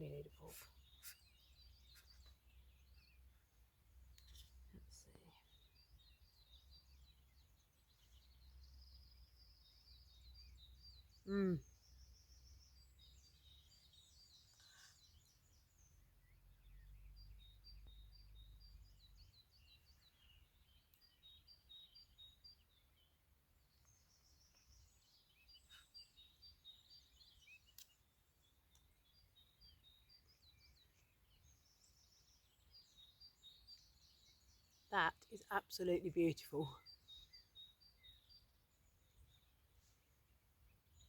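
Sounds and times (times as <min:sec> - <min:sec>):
small birds chirping: 0:00.0 - 0:41.0
faint clicks: 0:27.7 - 0:28.0, 0:28.7 - 0:28.9.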